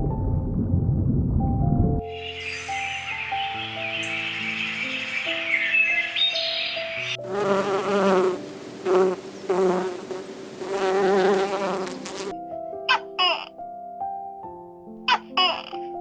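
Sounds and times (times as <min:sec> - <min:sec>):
background music: 0:00.0 - 0:16.0
flying insect buzzing: 0:07.0 - 0:12.3.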